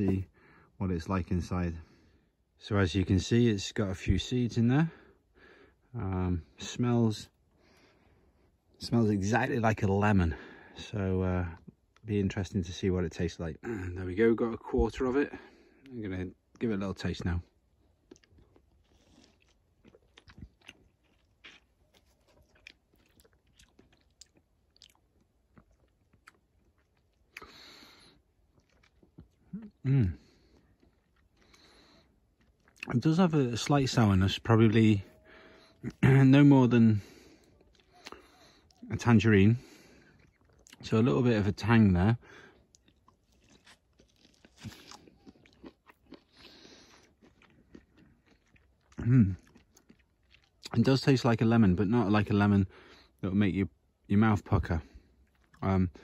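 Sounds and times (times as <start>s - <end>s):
wet mouth sounds chewing: 17.6s - 33.0s, 37.0s - 38.9s, 39.6s - 40.8s, 42.5s - 50.8s.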